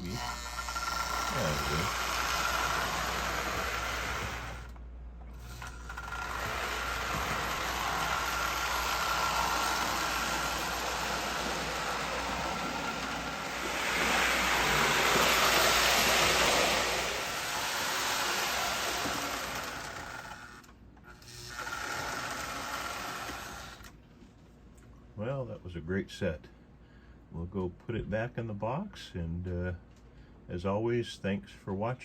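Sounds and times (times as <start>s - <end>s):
toy train motor whirring: 0.0s - 23.9s
wheels rattling on rails: 6.2s - 20.0s.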